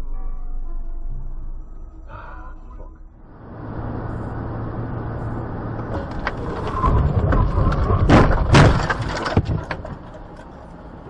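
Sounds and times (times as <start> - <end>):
car driving: 0.0 - 11.0
loud crash: 6.0 - 9.7.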